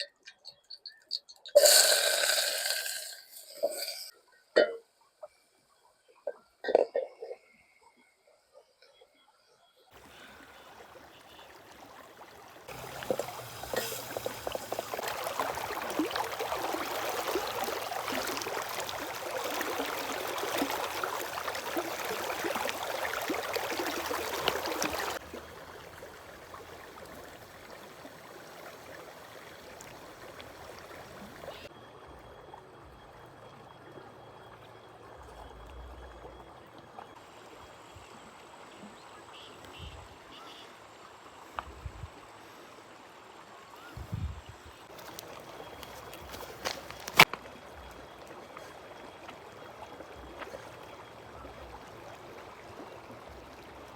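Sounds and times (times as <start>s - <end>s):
river water rushing: 10.0s - 31.2s.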